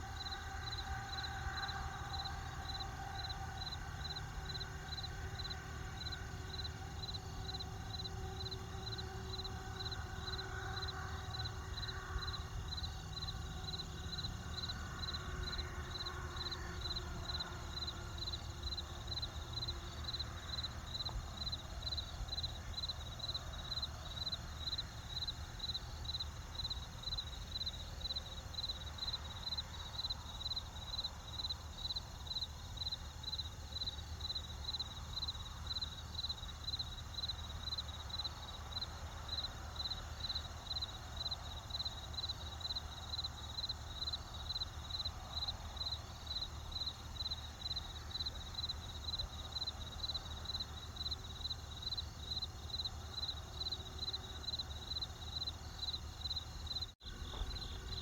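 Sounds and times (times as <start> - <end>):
crickets chirping: 0.0 - 58.0
low steady rumble: 57.0 - 58.0.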